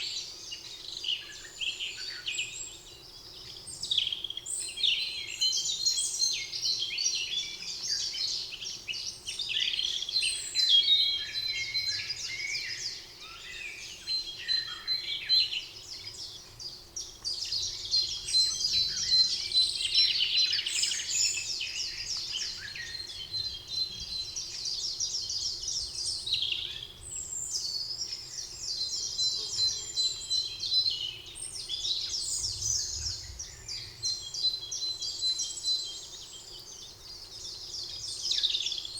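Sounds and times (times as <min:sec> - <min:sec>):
birds chirping and trilling: 0:08.7 - 0:38.9.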